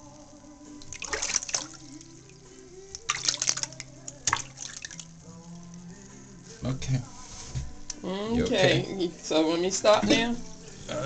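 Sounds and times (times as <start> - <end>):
water splashing and dripping: 0.7 - 5.9.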